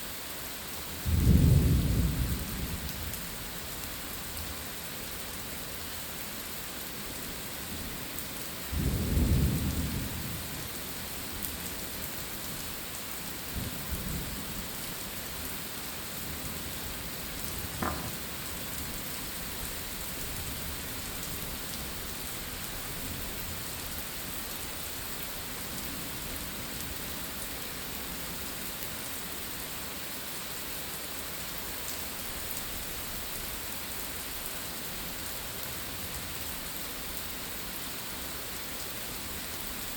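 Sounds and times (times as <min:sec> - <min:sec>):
steady rain: 0:00.0 - 0:39.9
short sharp knock: 0:17.8 - 0:18.3.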